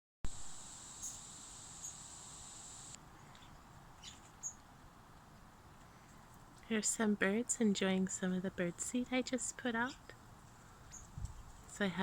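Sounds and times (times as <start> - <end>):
high-pitched whine: 0.3 - 3.0
songbirds chirping: 1.0 - 12.0.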